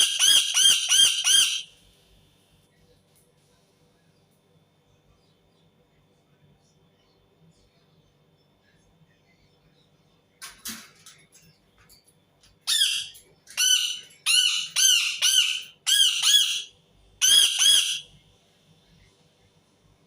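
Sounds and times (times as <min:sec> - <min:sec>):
parakeet screeching: 0:00.0 - 0:01.7, 0:12.7 - 0:18.1.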